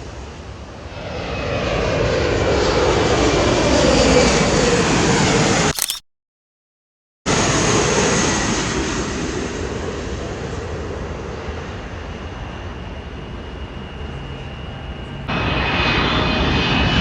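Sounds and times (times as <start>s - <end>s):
jet engine rush: 15.3s - 17.0s.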